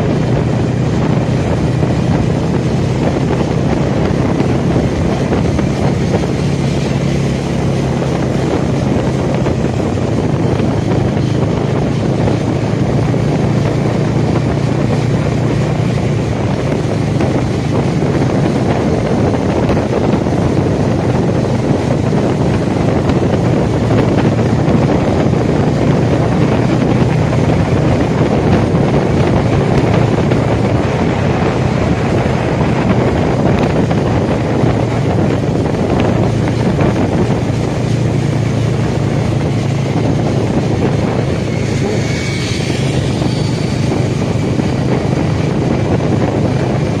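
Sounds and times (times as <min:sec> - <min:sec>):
motorcycle engine drone: 0:00.0 - 0:47.0
wind rushing over microphone: 0:00.0 - 0:47.0
high-pitched tone: 0:40.9 - 0:44.4.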